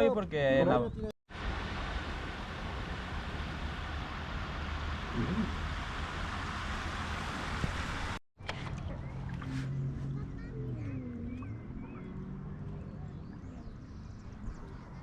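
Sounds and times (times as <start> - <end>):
wind rushing over microphone: 1.3 - 8.2.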